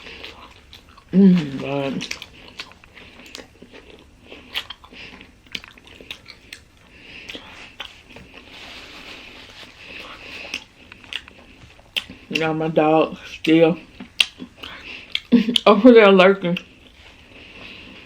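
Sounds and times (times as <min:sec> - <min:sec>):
person chewing wet clicks: 0:00.0 - 0:08.4, 0:09.9 - 0:12.6, 0:13.2 - 0:15.8
bread crunching: 0:00.0 - 0:12.6.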